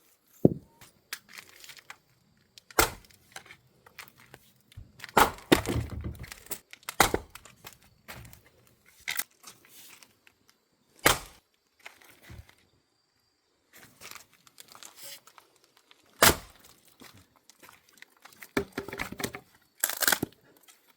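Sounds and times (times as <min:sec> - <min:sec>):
wood cracking and splitting: 0:02.6 - 0:08.4, 0:11.0 - 0:12.1, 0:14.1 - 0:20.4
axe chopping firewood: 0:02.8 - 0:03.2, 0:05.0 - 0:06.3, 0:07.0 - 0:07.4, 0:11.0 - 0:11.4, 0:16.2 - 0:16.6.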